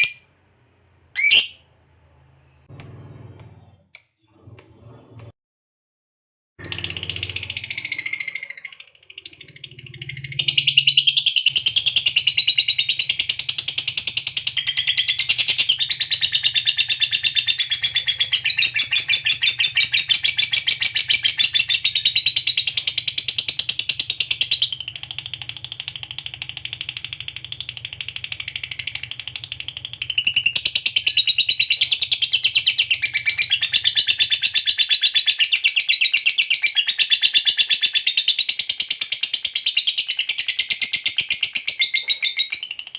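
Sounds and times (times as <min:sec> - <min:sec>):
lovebird chattering trill: 0:01.2 - 0:01.6.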